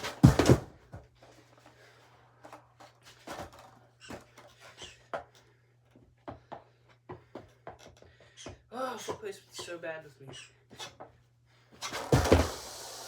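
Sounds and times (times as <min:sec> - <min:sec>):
skateboard knocks on carpet: 0:00.0 - 0:01.1, 0:12.0 - 0:12.8.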